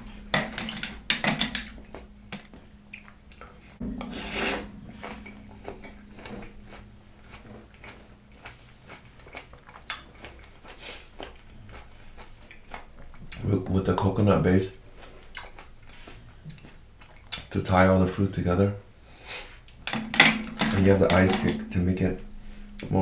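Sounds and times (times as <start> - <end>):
spoon clinking in a bowl: 0.0 - 2.5, 19.9 - 22.8
chewing: 6.7 - 14.1, 14.9 - 17.6.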